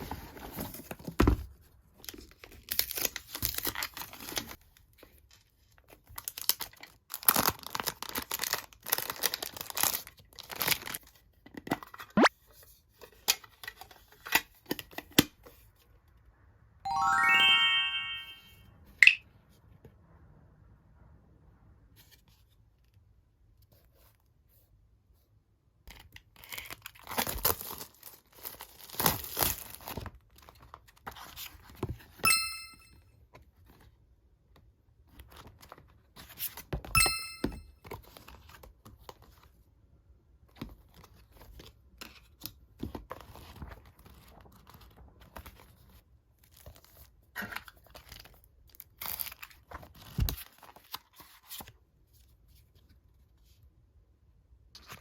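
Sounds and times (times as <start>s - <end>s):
short ringing tone: 16.9s - 18.6s, 32.3s - 33.0s, 37.0s - 37.7s.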